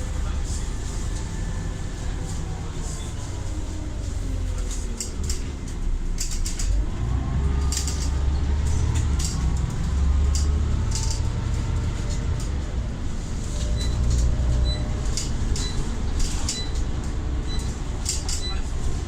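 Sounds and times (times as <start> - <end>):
bus engine rumble: 0.0 - 19.0
sharp clicks and rattles: 7.6 - 12.6.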